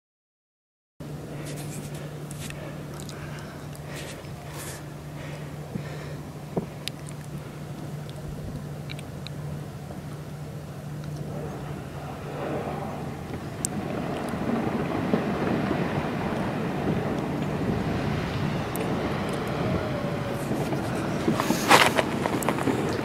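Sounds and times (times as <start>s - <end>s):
steady engine hum: 1.0s - 23.0s
rushing noise: 11.2s - 23.0s.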